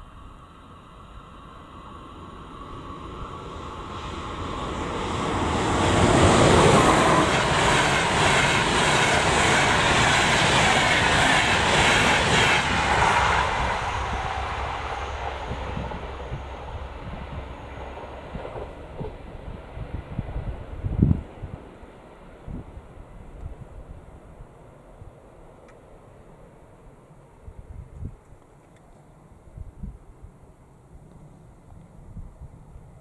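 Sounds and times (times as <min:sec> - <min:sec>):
train passing: 0:00.0 - 0:28.0
wheel-on-rail noise: 0:01.7 - 0:20.8.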